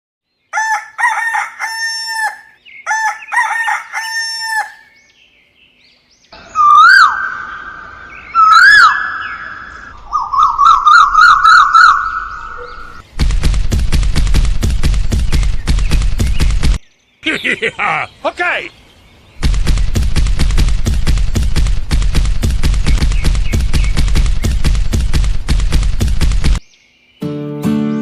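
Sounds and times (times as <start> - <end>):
rooster crowing: 0.5 - 4.9
rapid clatter of sharp clicks: 13.1 - 16.8, 19.4 - 26.6.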